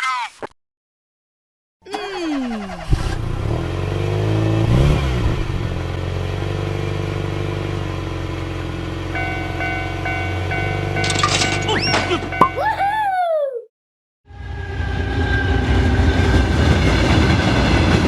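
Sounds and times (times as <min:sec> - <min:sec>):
railroad crossing alarm: 0:09.1 - 0:12.6.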